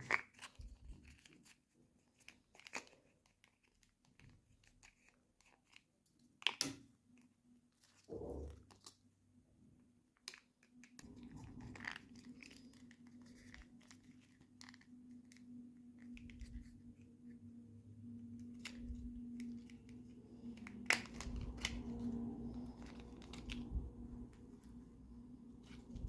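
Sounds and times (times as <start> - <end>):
plastic packaging crinkling: 10.3 - 17.1, 18.3 - 26.0
faint low hum: 10.9 - 26.0.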